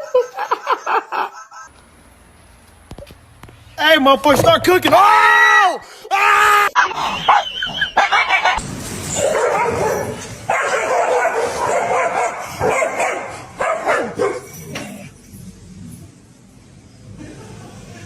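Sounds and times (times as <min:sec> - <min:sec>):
dog barking and yapping: 0:06.8 - 0:14.9.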